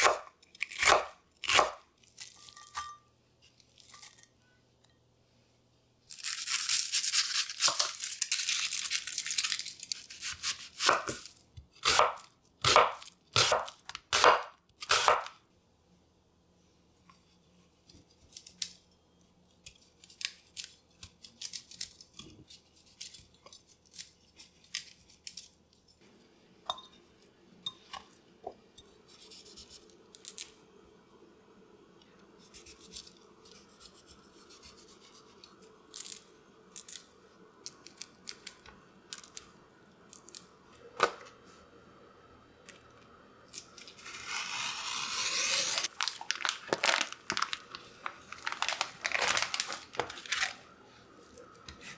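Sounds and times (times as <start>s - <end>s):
packaging crinkling: 6.1s - 11.3s, 43.6s - 50.8s.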